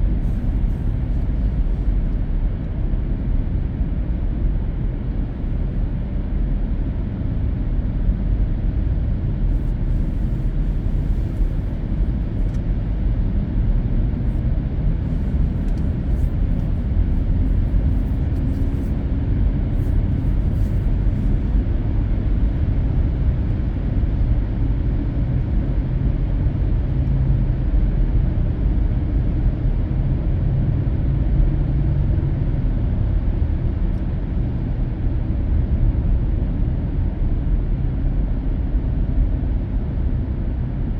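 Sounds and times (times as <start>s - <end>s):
car road noise from inside: 0.0s - 27.7s.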